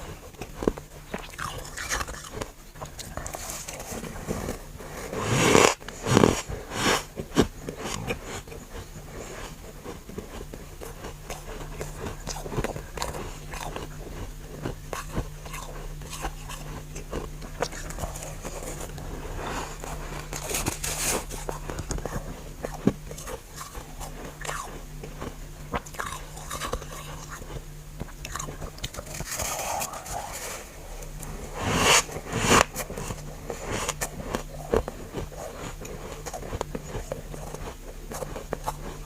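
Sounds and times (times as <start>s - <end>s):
crunching ice being chewed: 0.0s - 39.0s
faint steady hum: 0.0s - 39.0s.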